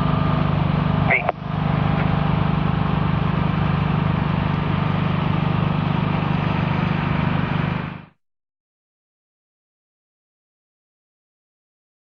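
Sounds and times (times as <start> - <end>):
vehicle engine droning: 0.0 - 8.2.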